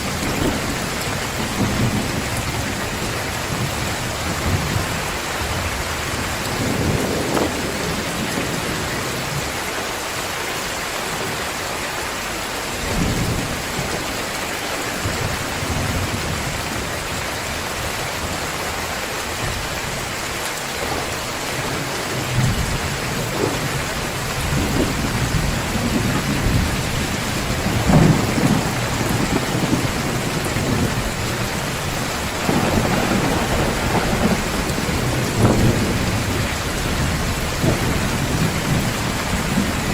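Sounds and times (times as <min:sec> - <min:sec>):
thunder rumbling: 0:00.0 - 0:09.6, 0:20.7 - 0:39.9
heavy rain pouring: 0:00.0 - 0:39.9.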